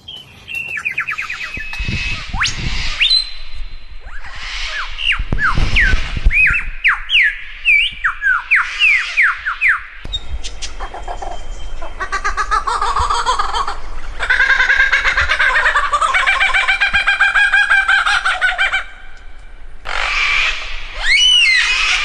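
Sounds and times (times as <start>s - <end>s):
bird whistling sharp notes: 0.0s - 12.6s, 19.9s - 22.0s
bird chattering: 0.0s - 19.2s.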